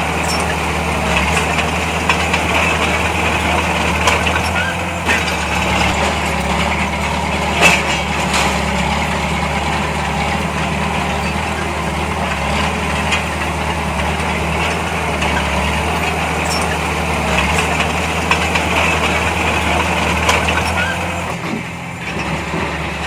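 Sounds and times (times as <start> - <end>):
heavy diesel machinery running: 0.0 - 23.0
sharp metallic clank: 4.1 - 8.8.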